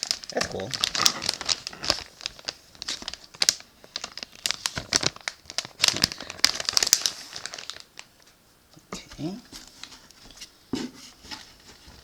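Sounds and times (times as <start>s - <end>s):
snack packaging crinkling: 0.0s - 8.3s.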